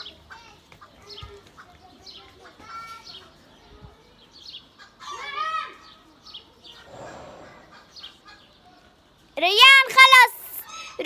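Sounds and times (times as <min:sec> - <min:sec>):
chickens clucking: 0:06.7 - 0:08.6
chicken squawk: 0:06.8 - 0:08.5.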